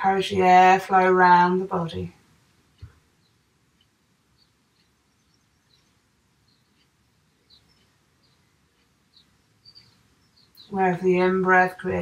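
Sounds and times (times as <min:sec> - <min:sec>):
faint bird chirps: 0:02.7 - 0:12.0.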